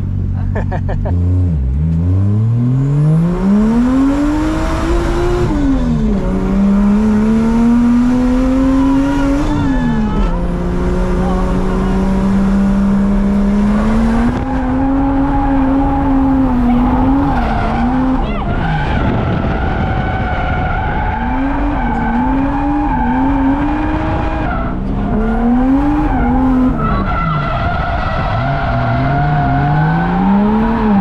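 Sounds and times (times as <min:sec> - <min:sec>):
car engine revving: 0:00.0 - 0:31.0
tyres squealing and skidding: 0:08.6 - 0:12.3, 0:13.7 - 0:31.0.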